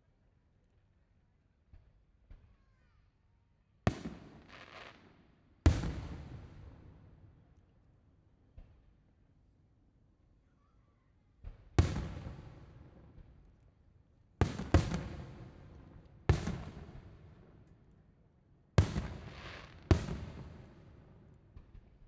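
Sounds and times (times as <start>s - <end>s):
fireworks bangs with echo: 5.7s - 6.9s, 11.6s - 13.3s, 14.4s - 17.3s, 18.8s - 22.0s.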